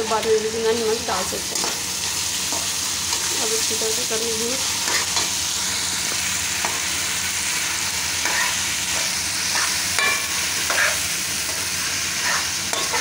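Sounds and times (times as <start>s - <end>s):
masala sizzling in a pan: 0.0s - 13.0s
metal spoon scraping a pan: 4.7s - 5.4s, 8.2s - 13.0s.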